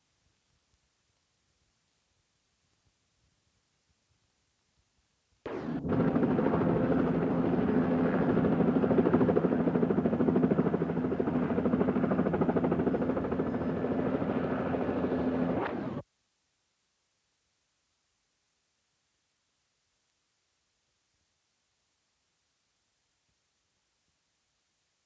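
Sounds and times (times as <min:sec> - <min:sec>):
helicopter engine tone: 0:05.5 - 0:16.0
helicopter rotor chopping: 0:05.5 - 0:16.0.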